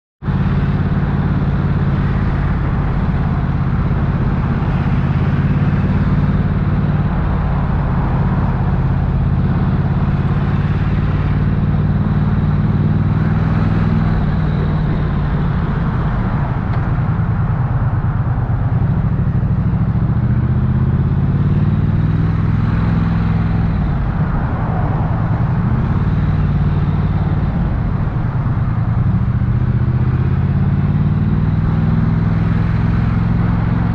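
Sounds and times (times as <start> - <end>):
motorcycle engine and exhaust: 0.2 - 33.9.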